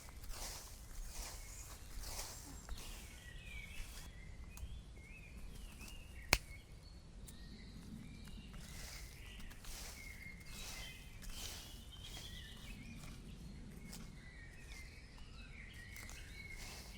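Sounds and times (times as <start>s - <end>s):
birds chirping: 0.2s - 16.9s
sharp snap: 6.3s - 6.6s.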